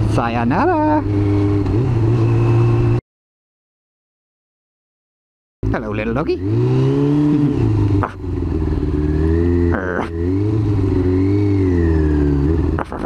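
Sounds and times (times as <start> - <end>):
motorcycle engine revving: 0.0 - 3.0, 5.6 - 13.0.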